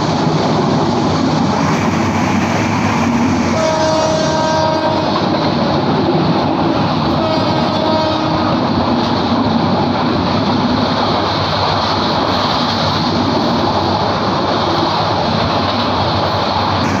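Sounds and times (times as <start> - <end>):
train wheel and track noise: 0.0 - 17.0.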